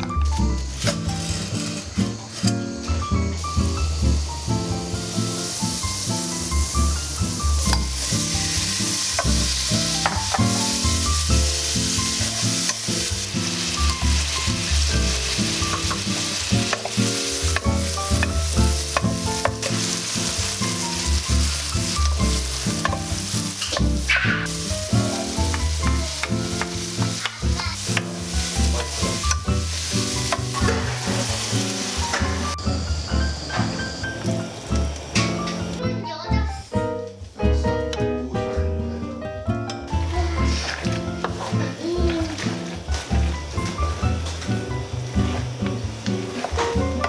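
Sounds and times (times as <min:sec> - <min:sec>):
background music with bass line: 0:00.0 - 0:33.6
food sizzling in a pan: 0:00.0 - 0:35.8, 0:39.8 - 0:47.0
utensil clicking in pan: 0:07.6 - 0:32.5.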